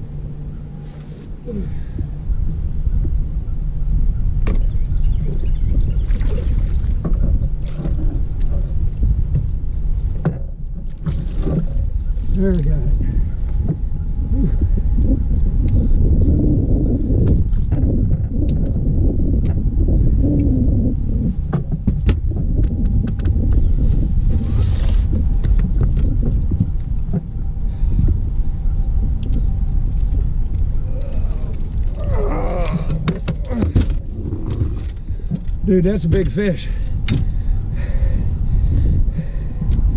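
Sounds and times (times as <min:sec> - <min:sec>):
wind and boat rumble: 0:00.0 - 0:39.9
water splashes: 0:06.0 - 0:08.2.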